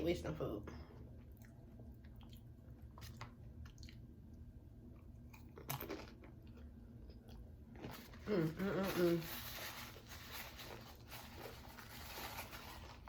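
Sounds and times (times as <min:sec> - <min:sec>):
person chewing food: 0:01.0 - 0:08.2.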